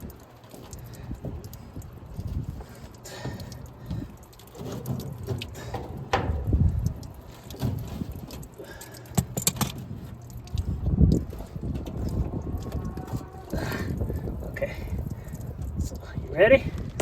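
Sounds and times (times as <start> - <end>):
wind rumble on microphone: 0.0 - 17.0
metal clinking and knocking: 4.5 - 9.9.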